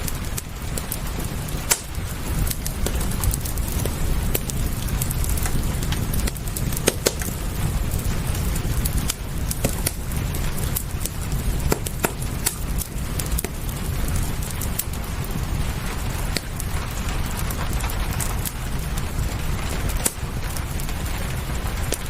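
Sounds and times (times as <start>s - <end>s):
low rumble: 0.0s - 22.0s
rain hiss: 0.0s - 22.0s
wood fire crackling: 0.0s - 22.0s.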